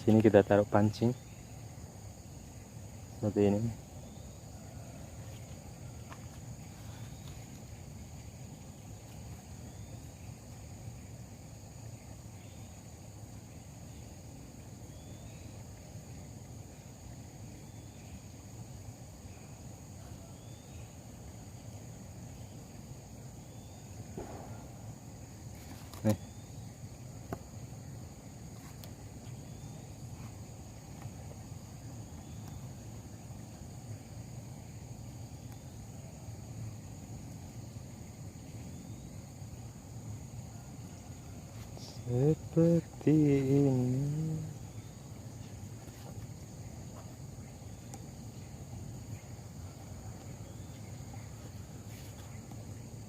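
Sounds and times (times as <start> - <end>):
insects droning: 0.0 - 53.0
faint ticks: 47.8 - 48.1.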